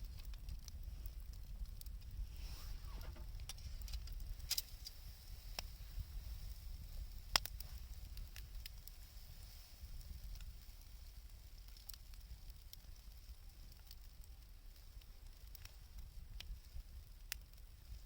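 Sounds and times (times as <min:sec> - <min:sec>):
sharp pops from fire: 0:00.0 - 0:18.0
wood fire crackling: 0:00.0 - 0:18.0
low rumble: 0:02.2 - 0:04.0.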